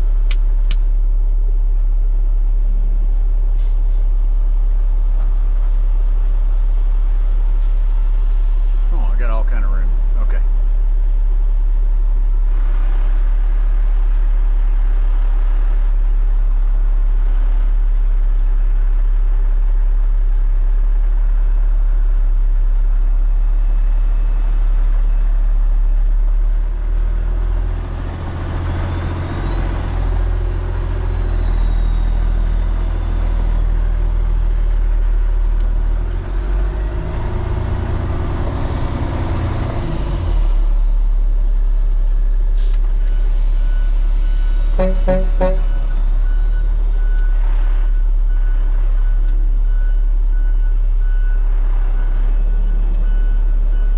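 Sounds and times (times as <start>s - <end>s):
engine high whine: 0.0s - 53.9s
truck diesel engine running: 20.3s - 53.9s.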